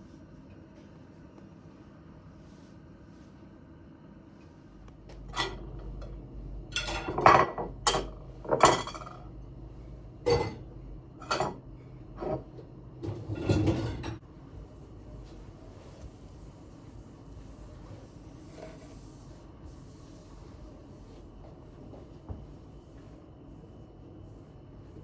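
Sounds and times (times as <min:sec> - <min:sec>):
dishes and cutlery clinking: 0:06.7 - 0:09.2, 0:10.3 - 0:10.6, 0:11.2 - 0:11.6.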